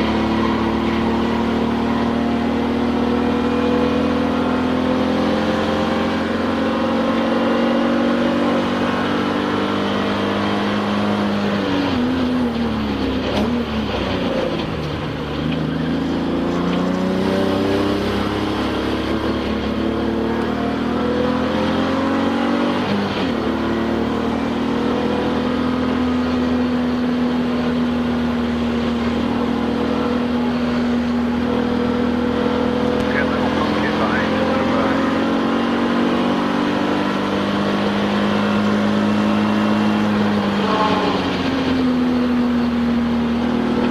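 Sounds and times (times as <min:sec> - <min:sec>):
race car engine from cockpit: 0:00.0 - 0:43.9.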